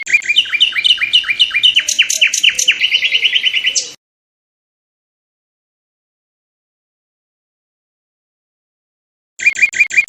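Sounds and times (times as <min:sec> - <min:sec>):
songbird singing: 0:00.0 - 0:04.0, 0:09.4 - 0:10.0.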